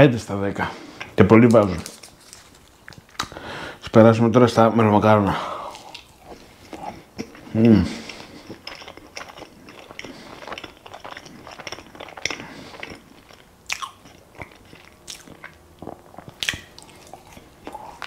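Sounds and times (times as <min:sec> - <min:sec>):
cookie chewing and crunching: 0:05.7 - 0:18.0.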